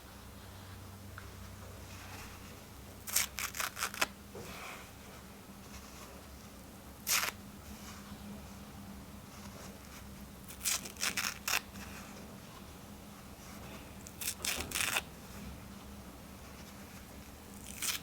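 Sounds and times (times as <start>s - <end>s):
paper towel tearing: 3.0s - 4.1s, 7.0s - 7.4s, 10.5s - 11.8s, 14.1s - 15.1s, 17.5s - 18.0s.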